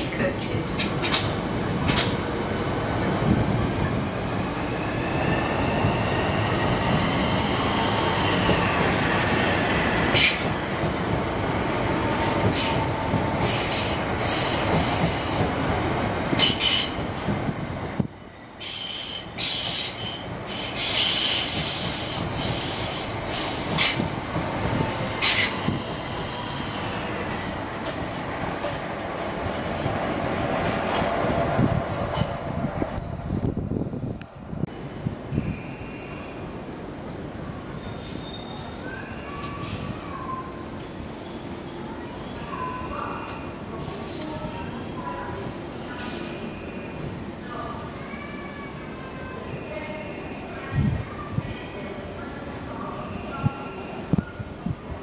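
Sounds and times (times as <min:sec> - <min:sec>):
train wheels rumbling on rail: 0:00.0 - 0:41.7.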